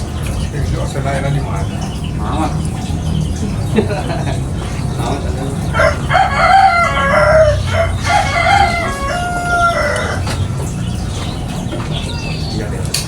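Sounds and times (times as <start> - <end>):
rooster crowing: 5.6 - 10.5.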